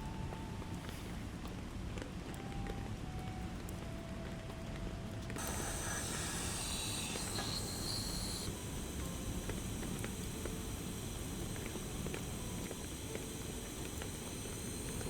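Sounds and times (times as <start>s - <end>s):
high hiss: 5.4s - 15.0s.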